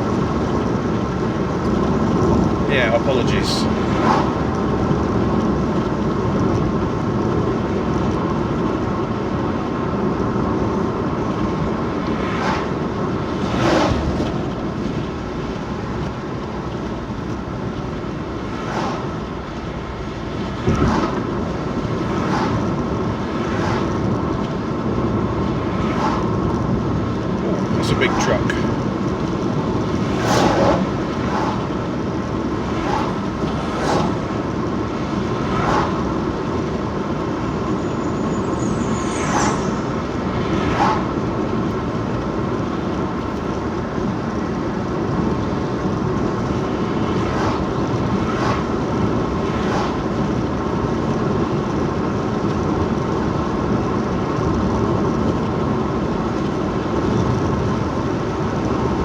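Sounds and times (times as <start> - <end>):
car engine and tyre noise: 0.0 - 59.0.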